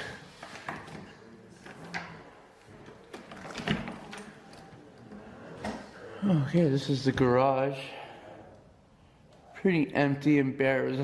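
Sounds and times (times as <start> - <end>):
door opening: 2.8 - 4.9.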